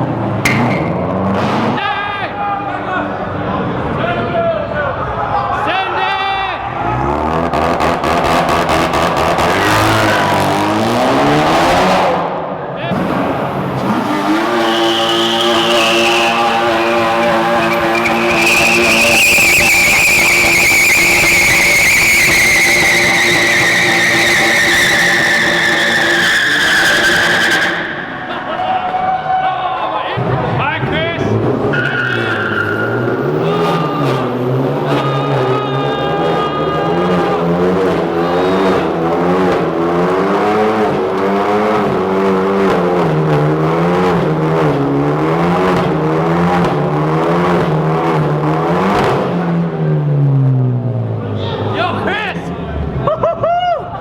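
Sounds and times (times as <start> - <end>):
car engine at high revs: 0.0 - 1.8, 6.8 - 28.5, 30.9 - 51.3
tyres squealing: 13.0 - 29.4, 31.6 - 39.6.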